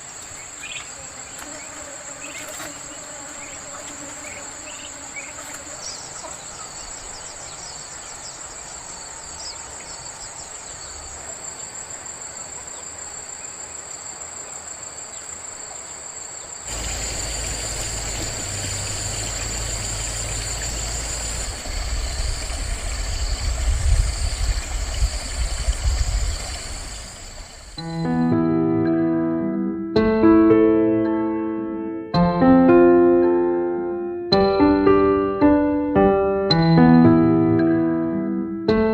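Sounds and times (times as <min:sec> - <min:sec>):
insects buzzing shrilly: 0:00.0 - 0:28.3
pulsing insect call: 0:00.0 - 0:28.4
low rumbling noise: 0:16.7 - 0:28.4.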